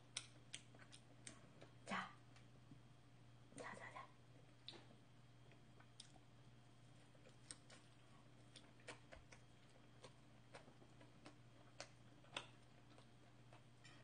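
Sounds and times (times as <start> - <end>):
low steady hum: 0.0 - 14.0
chewing food clicks: 0.1 - 2.5, 4.6 - 6.2, 7.2 - 14.0.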